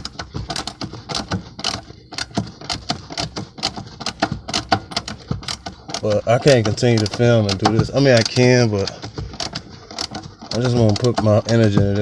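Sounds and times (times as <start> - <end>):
ratchet wrench clicking: 0.0 - 11.8.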